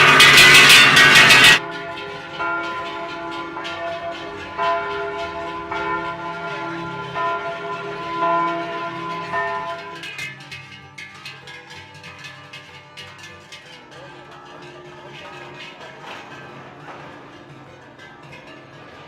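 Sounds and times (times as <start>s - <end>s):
cowbells clanging: 0.0s - 19.0s.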